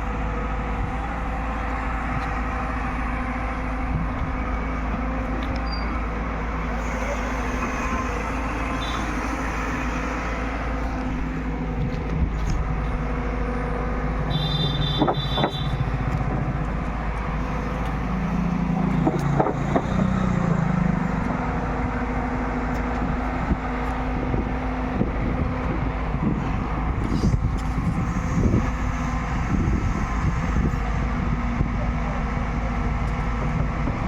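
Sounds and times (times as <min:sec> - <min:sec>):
diesel engine running under load: 0:00.0 - 0:34.0
short high squeal: 0:05.6 - 0:06.0, 0:06.8 - 0:10.5
sharp knocks: 0:15.0 - 0:15.8.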